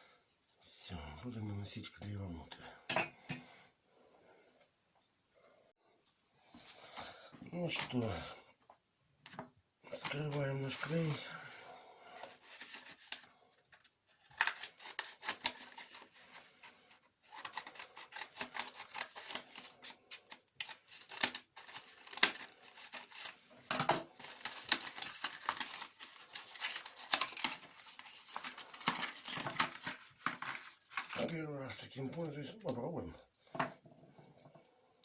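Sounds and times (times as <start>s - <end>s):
plastic package clicking and crackling: 17.3s - 23.4s, 24.1s - 31.4s.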